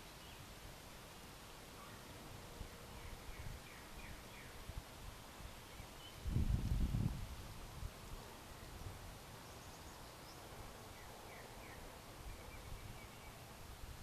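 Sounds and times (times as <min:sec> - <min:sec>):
faint bird chirps: 0:01.7 - 0:04.7, 0:08.5 - 0:13.7.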